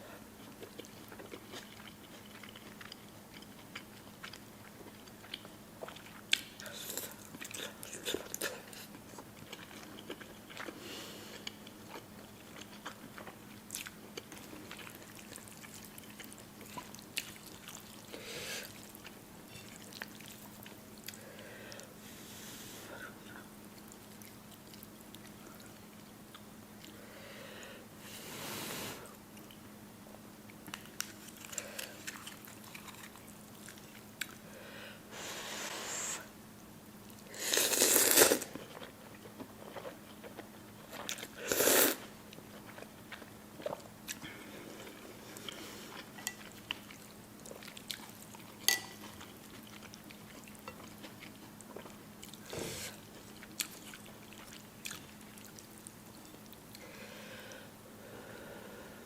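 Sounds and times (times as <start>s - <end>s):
chewing noodles with wet clicks: 0.4s - 10.8s, 11.4s - 21.2s, 23.7s - 27.0s, 30.5s - 34.4s, 37.0s - 52.4s, 53.2s - 56.8s.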